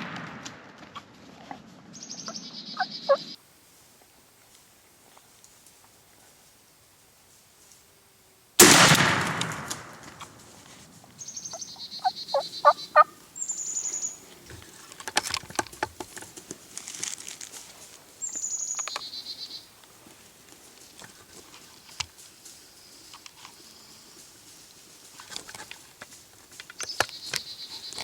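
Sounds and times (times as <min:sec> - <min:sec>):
songbird chirps: 0:01.9 - 0:03.4, 0:11.0 - 0:14.8, 0:17.9 - 0:25.3, 0:25.9 - 0:28.0
turkey gobbling: 0:11.5 - 0:13.2.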